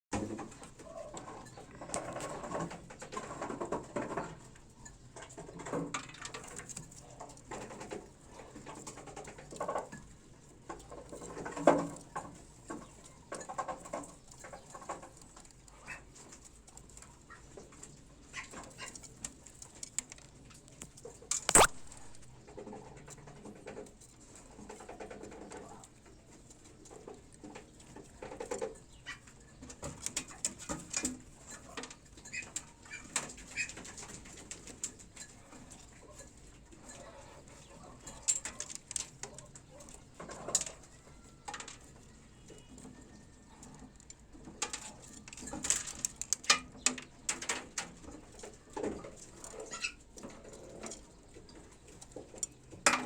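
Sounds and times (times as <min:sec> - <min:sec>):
shuffling scratching and pecking: 0:00.2 - 0:52.9
pigeons cooing: 0:00.8 - 0:02.7
sharp click: 0:21.4 - 0:22.3.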